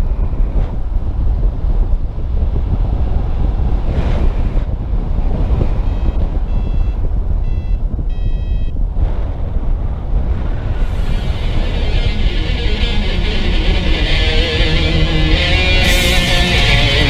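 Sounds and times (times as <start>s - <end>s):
wind buffeting microphone: 0.0s - 17.0s
short electronic beeps: 5.8s - 8.8s.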